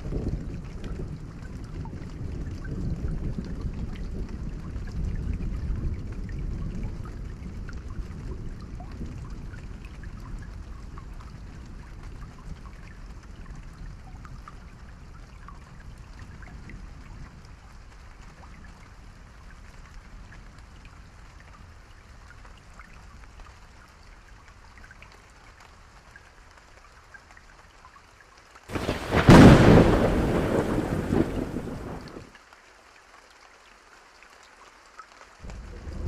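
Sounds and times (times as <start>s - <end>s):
light rain falling: 0.0s - 36.0s
loud thunderclap rumbling: 28.7s - 32.3s, 35.5s - 36.0s.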